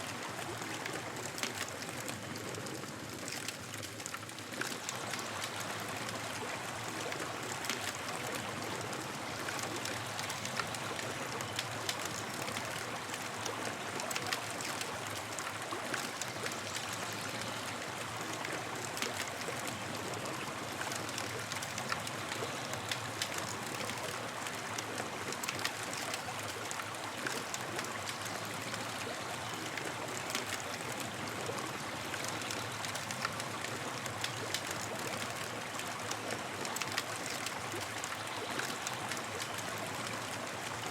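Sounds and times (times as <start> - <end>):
campfire crackling and popping: 9.4 - 16.7.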